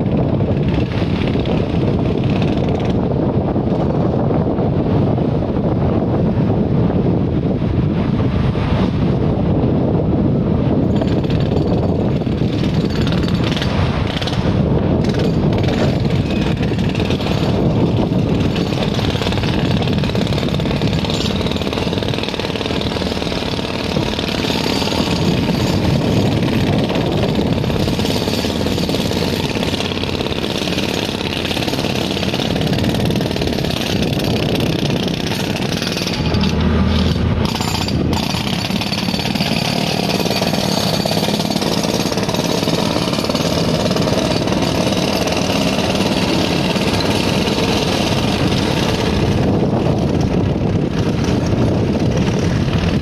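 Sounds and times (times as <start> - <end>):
wind on microphone: 0.0 - 53.0
train rattling over steel bridge: 10.6 - 53.0.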